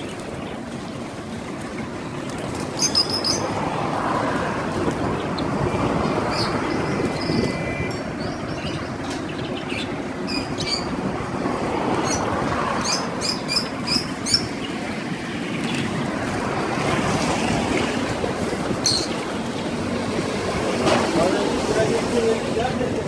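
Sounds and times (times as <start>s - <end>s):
small birds chirping: 0.0s - 3.6s, 4.8s - 11.0s, 11.9s - 16.4s, 18.5s - 20.6s
street noise: 0.0s - 23.0s.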